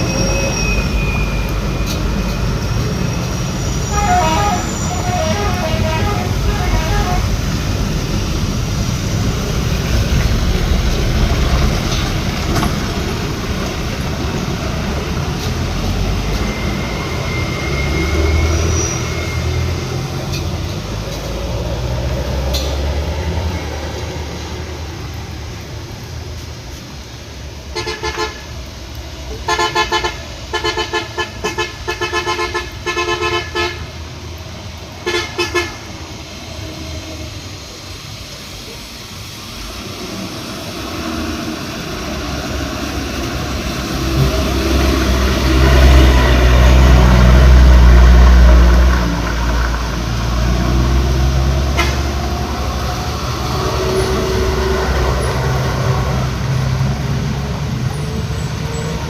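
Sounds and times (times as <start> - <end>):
heavy vehicles passing on wet road: 0.0 - 59.0
vehicle horn tooting: 3.8 - 7.4, 27.8 - 28.4, 29.5 - 33.8, 35.0 - 35.8, 51.7 - 52.2.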